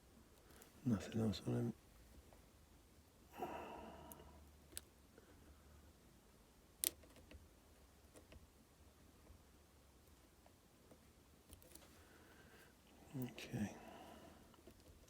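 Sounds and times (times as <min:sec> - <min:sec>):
lock pick clicking and scraping: 0:06.8 - 0:07.4.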